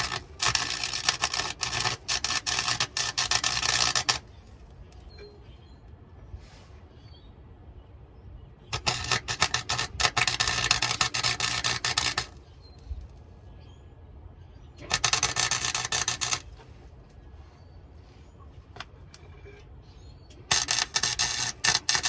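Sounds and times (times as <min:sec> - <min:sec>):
electric welder crackling: 0:00.0 - 0:04.4, 0:08.8 - 0:12.4, 0:14.8 - 0:16.6, 0:20.4 - 0:22.0.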